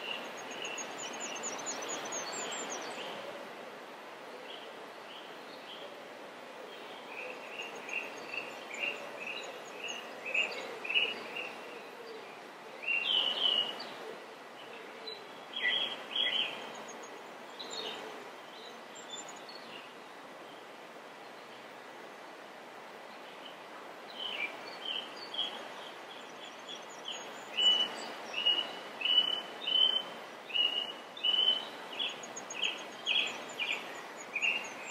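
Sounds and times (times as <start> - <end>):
small birds chirping: 0.0 - 3.0, 23.4 - 34.9
background hiss: 0.0 - 34.9.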